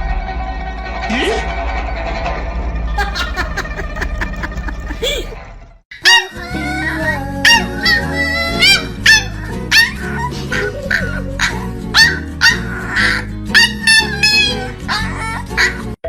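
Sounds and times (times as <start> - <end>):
background music: 6.0 - 16.0
dog barking: 8.7 - 14.4.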